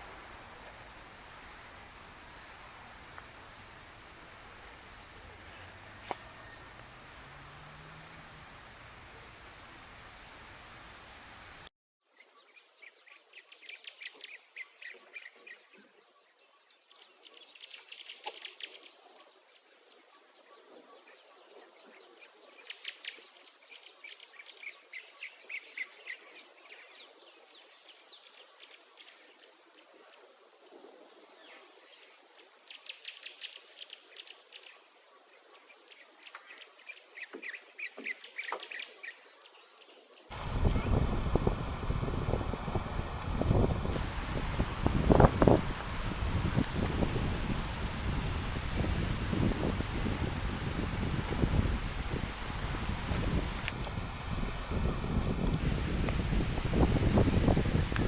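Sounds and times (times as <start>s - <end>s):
crickets chirping: 0.0s - 11.3s, 21.4s - 42.4s, 43.5s - 53.7s
insects buzzing: 0.0s - 11.6s, 21.4s - 42.8s, 43.4s - 53.8s, 54.8s - 58.0s.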